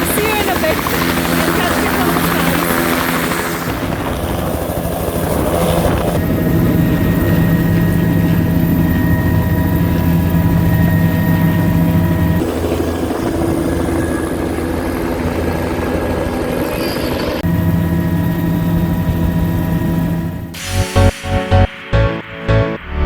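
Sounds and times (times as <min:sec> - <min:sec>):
helicopter engine and rotor drone: 0:00.0 - 0:21.2
high whining tones: 0:05.7 - 0:15.2, 0:16.0 - 0:23.0.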